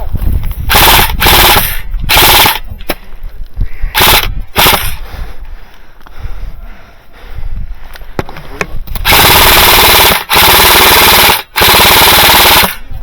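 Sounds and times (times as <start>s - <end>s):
airsoft machine gun bursts: 0.7s - 2.6s, 3.9s - 5.0s, 9.0s - 12.8s.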